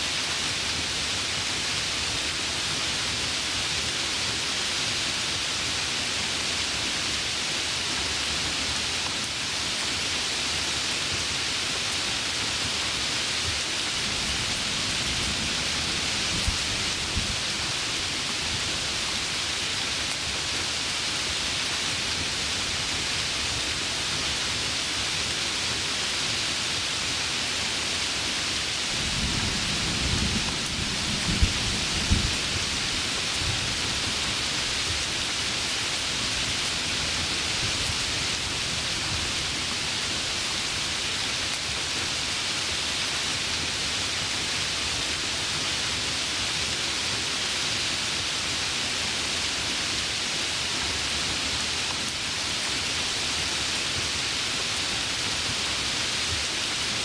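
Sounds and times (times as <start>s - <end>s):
heavy rain: 0.0s - 57.0s
thunder rumbling and cracking: 29.0s - 32.8s.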